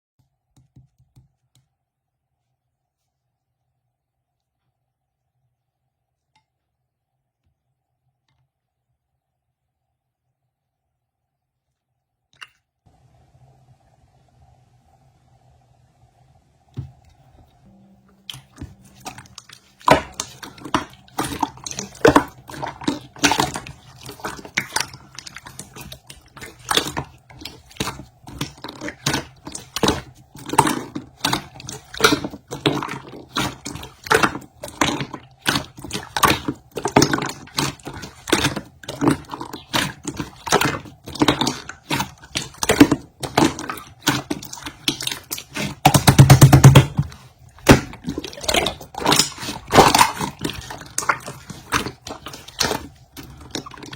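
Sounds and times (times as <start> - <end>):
slime squelching: 16.8 - 53.9.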